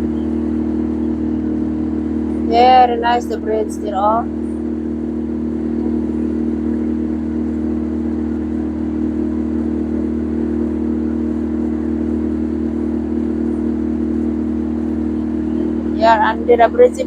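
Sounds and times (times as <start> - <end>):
boat engine drone: 0.0 - 17.0.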